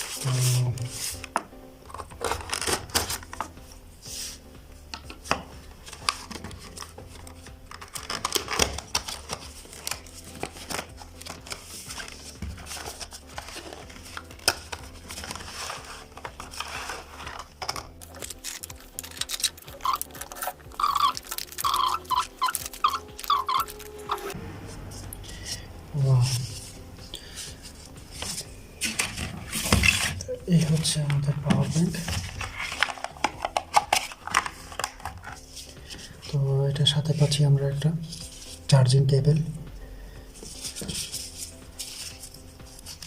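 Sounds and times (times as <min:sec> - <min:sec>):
cardboard box being opened: 0:05.9 - 0:24.4
packaging crinkling: 0:05.9 - 0:24.4.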